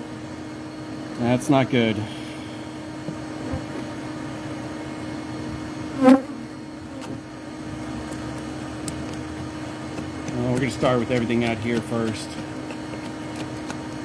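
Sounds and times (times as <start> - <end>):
steady low hum: 0.0 - 14.0
honeybees buzzing: 0.4 - 14.0
bee buzzing close to microphone: 2.8 - 7.3.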